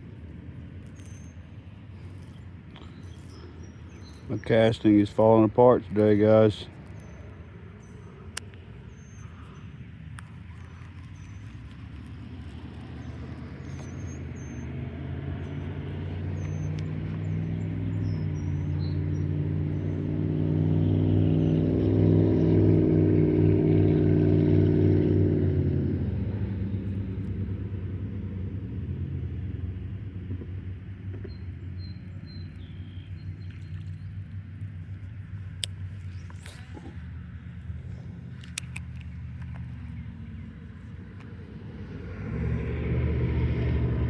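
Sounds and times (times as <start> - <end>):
vehicle engine driving past: 10.2 - 35.6, 36.2 - 44.0.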